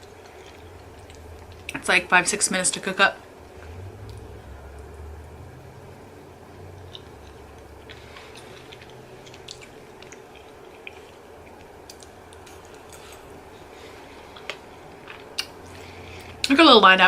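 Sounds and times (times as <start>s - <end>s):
person chewing food: 0.0s - 1.8s, 6.6s - 16.5s
faint steady hum: 0.0s - 17.0s.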